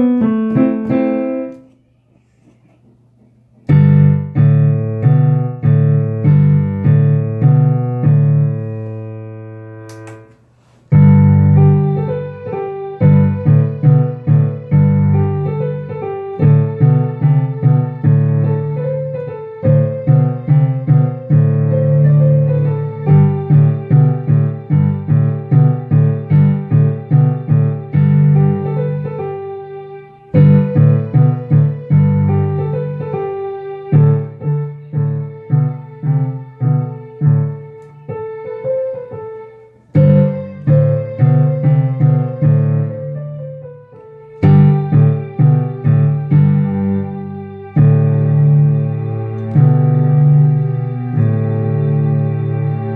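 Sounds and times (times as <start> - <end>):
piano playing: 0.0 - 1.9, 3.6 - 52.9.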